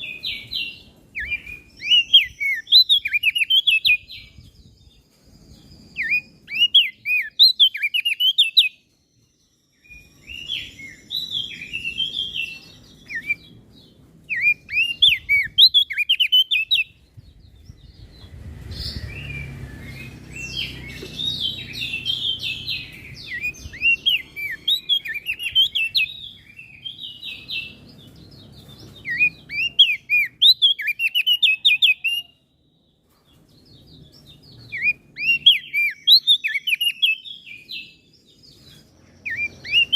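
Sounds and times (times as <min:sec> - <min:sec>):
bird chirping: 0:00.0 - 0:39.9
low rumble: 0:16.9 - 0:23.8.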